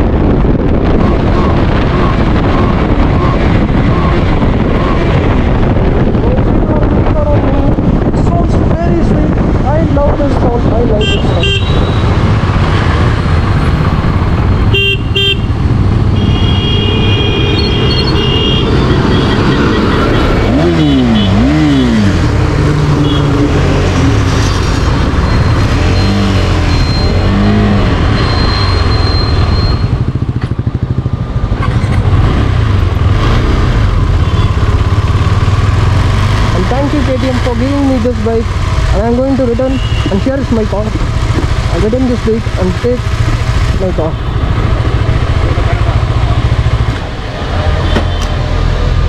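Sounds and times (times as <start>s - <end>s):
motorcycle engine revving: 0.0s - 8.2s, 9.3s - 49.0s
vehicle horns honking: 10.9s - 12.1s, 14.7s - 22.0s, 23.0s - 23.4s, 34.2s - 34.7s, 39.5s - 40.4s.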